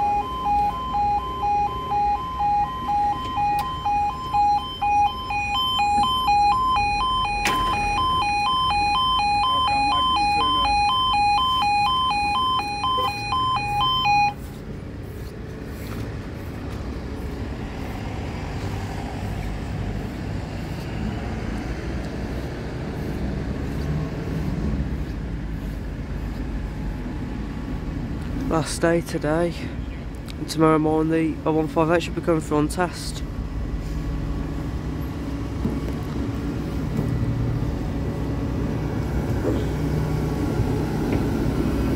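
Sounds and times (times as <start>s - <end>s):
two-tone warning alarm: 0.0s - 14.5s
motor vehicles rumbling: 0.0s - 41.9s.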